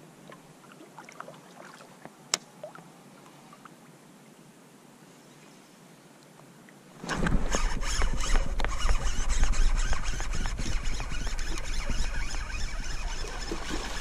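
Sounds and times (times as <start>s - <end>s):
fishing reel clicking and rasping: 7.4s - 14.0s.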